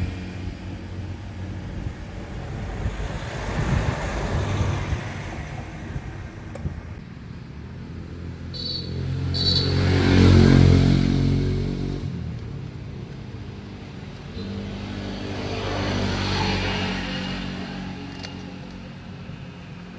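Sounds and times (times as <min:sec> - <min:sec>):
car engine rumble: 0:00.0 - 0:09.6.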